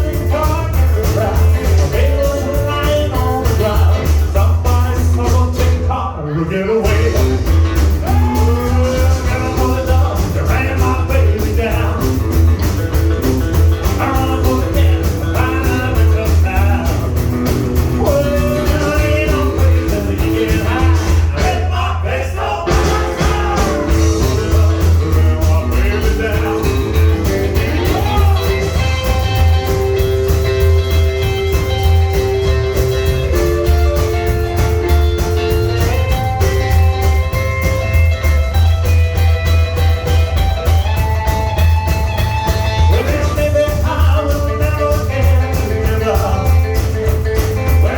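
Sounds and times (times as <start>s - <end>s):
lead voice singing: 0.0s - 12.5s, 13.7s - 31.9s, 42.5s - 47.9s
rockabilly band playing: 0.0s - 47.9s.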